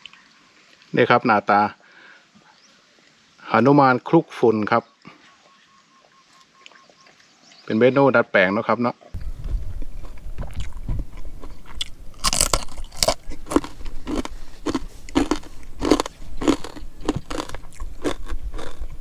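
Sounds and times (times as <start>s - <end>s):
chewing crunchy food: 9.2s - 19.0s.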